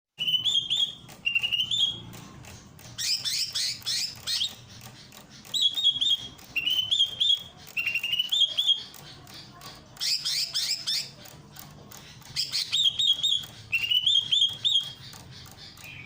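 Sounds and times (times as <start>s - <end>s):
bird singing whistles and chirps: 0.2s - 2.1s, 5.5s - 8.9s, 12.4s - 16.0s.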